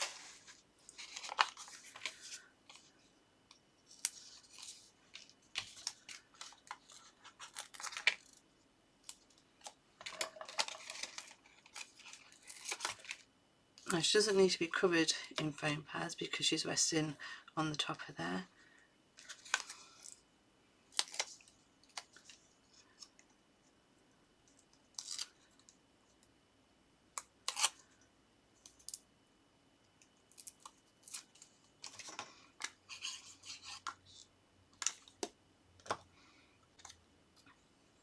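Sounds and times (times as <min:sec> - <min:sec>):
paper and card rustling: 0:00.0 - 0:03.0, 0:03.9 - 0:08.4, 0:10.0 - 0:13.2, 0:31.1 - 0:34.2.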